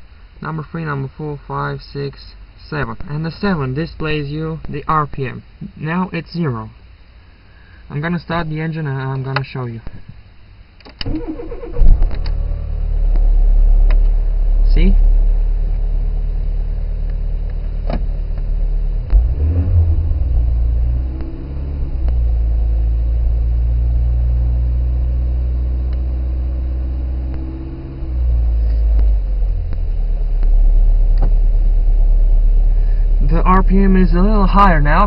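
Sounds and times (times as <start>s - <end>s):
car engine idling: 10.4s - 35.0s.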